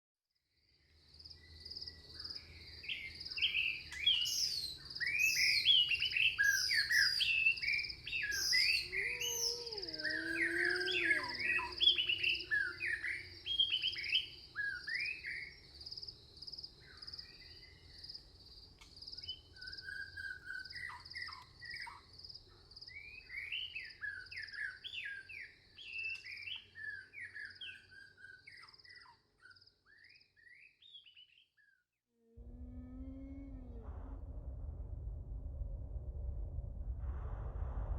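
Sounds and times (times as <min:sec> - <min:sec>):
songbirds chirping and singing: 0:01.5 - 0:15.8, 0:22.9 - 0:31.8
faint low rumble: 0:32.4 - 0:37.9.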